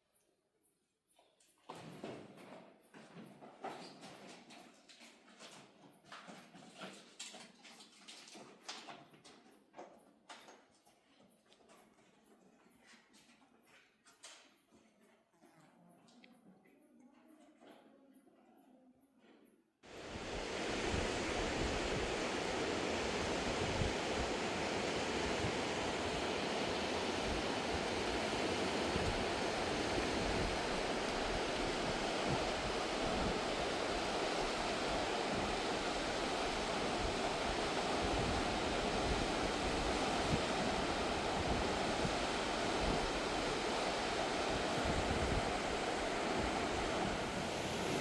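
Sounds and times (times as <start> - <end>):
wind buffeting microphone: 20.0 - 48.0.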